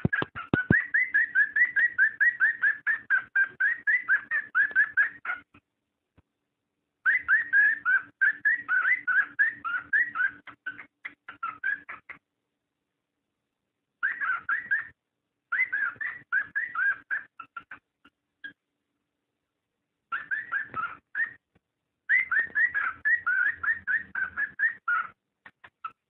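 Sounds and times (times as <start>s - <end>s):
cockatiel whistled chirps: 0.0s - 5.4s, 7.0s - 12.2s, 14.0s - 17.8s, 20.1s - 21.4s, 22.1s - 26.0s.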